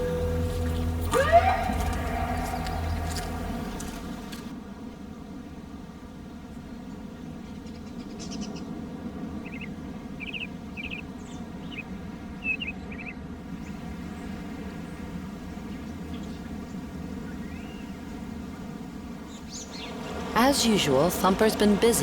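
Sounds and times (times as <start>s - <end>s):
low outdoor background noise: 0.0s - 22.0s.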